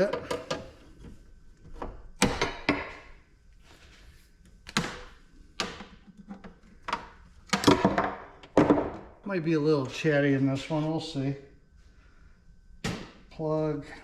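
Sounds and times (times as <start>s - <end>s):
ice maker knocking and clunking: 0.0s - 0.8s.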